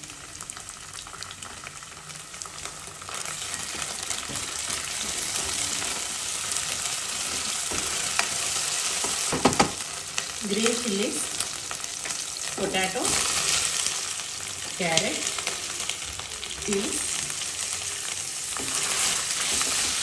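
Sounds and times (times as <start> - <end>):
onions sizzling in hot oil: 0.0 - 20.0
wooden spoon stirring: 18.0 - 20.0.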